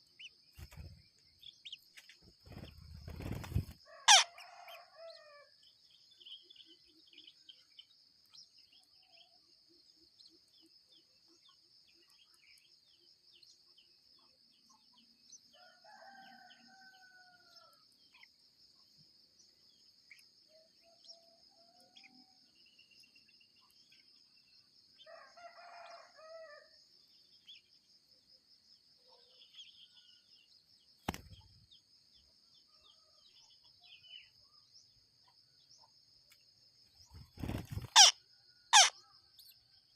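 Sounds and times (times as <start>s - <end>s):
insects droning: 0.0s - 39.9s
faint roosters crowing: 3.7s - 5.6s, 15.5s - 17.9s, 25.0s - 26.8s
small bird chirps: 32.7s - 39.9s.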